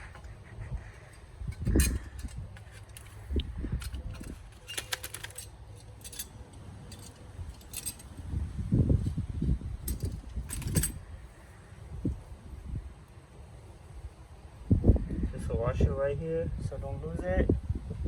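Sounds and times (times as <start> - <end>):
metal parts clinking: 0.9 - 8.4, 9.8 - 11.1.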